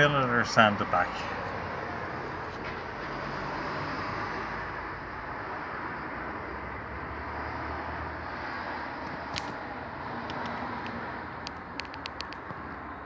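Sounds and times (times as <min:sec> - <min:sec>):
passing traffic rumble: 0:00.0 - 0:13.0
sharp click: 0:10.2 - 0:12.6.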